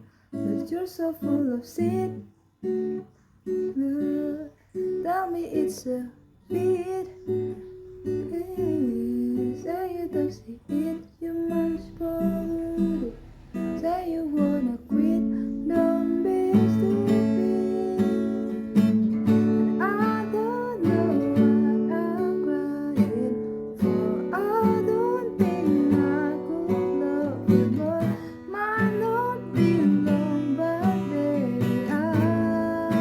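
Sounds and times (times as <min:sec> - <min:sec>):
acoustic guitar strumming chords: 0:00.0 - 0:33.0.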